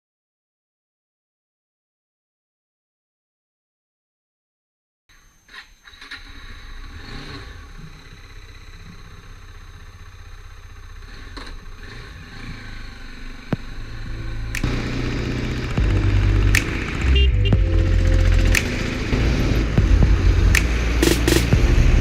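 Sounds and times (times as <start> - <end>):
motorcycle engine running: 7.2 - 22.0
sharp click: 14.5 - 14.7, 16.5 - 16.9, 18.5 - 19.1, 20.5 - 21.5.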